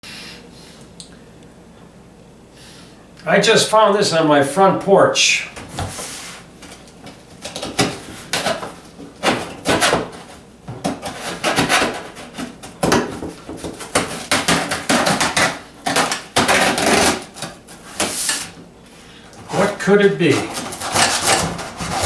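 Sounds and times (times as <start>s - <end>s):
cardboard box knocks and scrapes: 7.4s - 18.2s, 20.4s - 22.0s.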